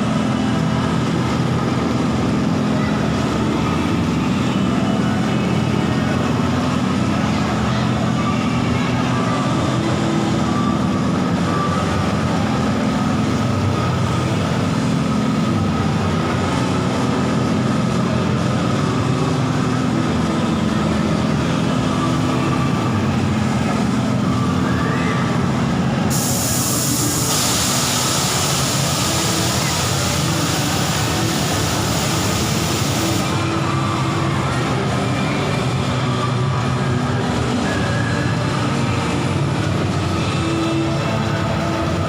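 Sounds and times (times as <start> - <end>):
low mechanical drone: 0.0 - 42.0
bright hiss: 26.1 - 33.3.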